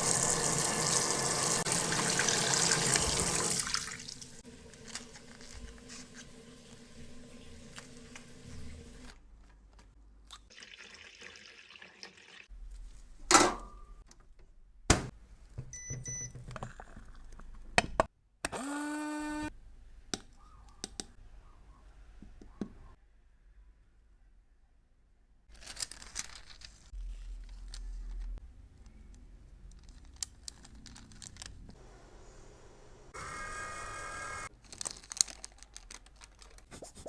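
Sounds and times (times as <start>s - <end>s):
light crinkling: 25.5s - 31.8s, 34.5s - 36.7s.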